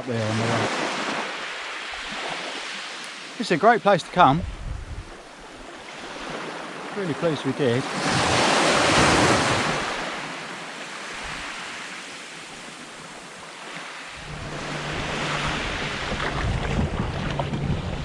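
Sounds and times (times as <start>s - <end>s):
sea waves washing in: 0.0s - 18.0s
wind on the microphone: 4.3s - 6.3s, 14.2s - 18.0s.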